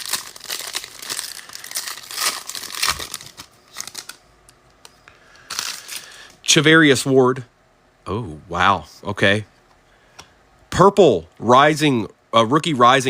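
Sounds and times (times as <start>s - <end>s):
cards rustling and clicking: 0.0s - 4.2s
foil wrappers torn and crinkled: 0.0s - 4.2s, 5.4s - 6.2s.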